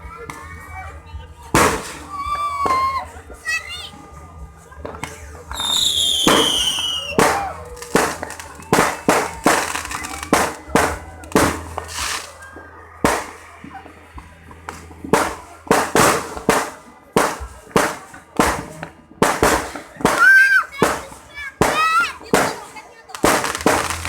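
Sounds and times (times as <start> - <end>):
fireworks bangs: 1.5 - 3.4, 4.8 - 24.0.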